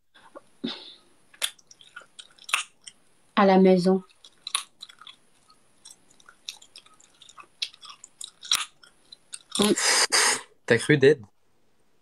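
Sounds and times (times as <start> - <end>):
person chewing with open mouth: 1.3 - 3.1, 4.0 - 10.0.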